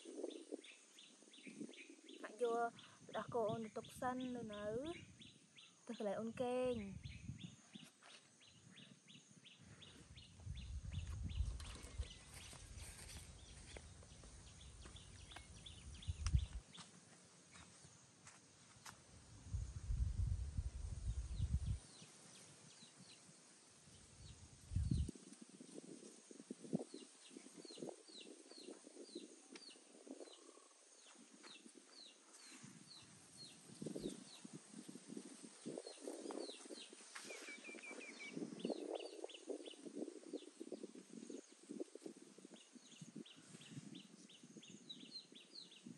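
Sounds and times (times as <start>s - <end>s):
bird chirping: 0.1s - 16.8s, 35.8s - 40.5s.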